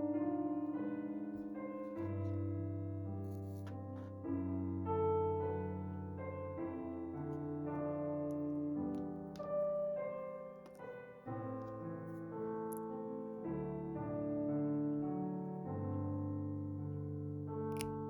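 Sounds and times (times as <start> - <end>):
soft piano music: 0.0 - 18.0.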